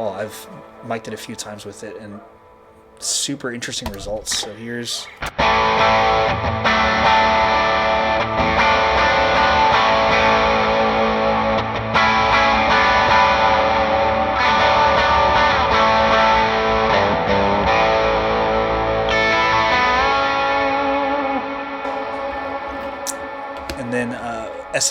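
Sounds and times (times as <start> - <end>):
overdriven electric guitar chords: 5.3 - 24.8.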